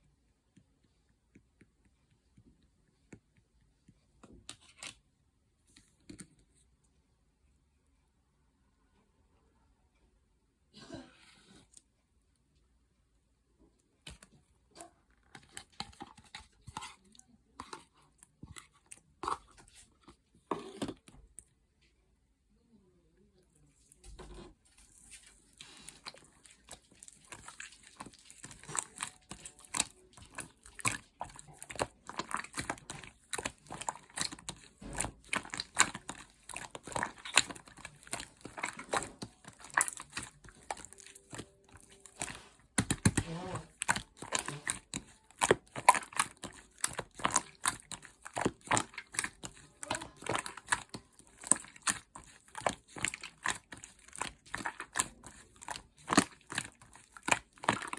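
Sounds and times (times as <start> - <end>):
slime squished by hand: 23.8 - 57.9.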